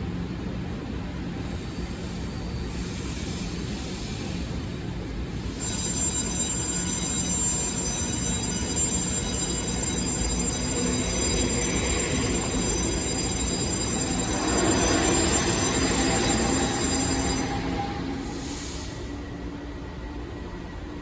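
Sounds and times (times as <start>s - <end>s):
train rumbling: 0.0s - 21.0s
high-pitched ringing tone: 5.4s - 19.2s.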